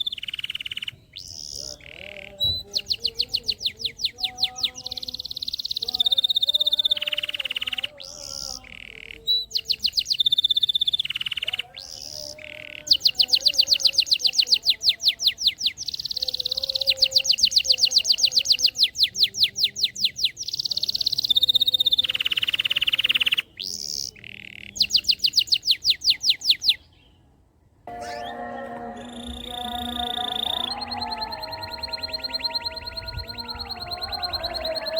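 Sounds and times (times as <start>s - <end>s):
canary singing in rapid trills: 0.0s - 26.9s, 27.9s - 34.9s
steady tone: 27.9s - 34.9s.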